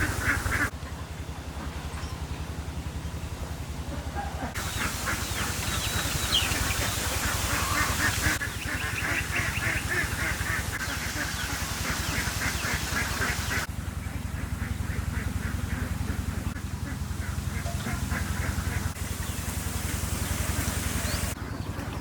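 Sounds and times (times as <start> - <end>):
steady low rumble: 0.0 - 22.0
birds calling in quick notes: 4.2 - 22.0.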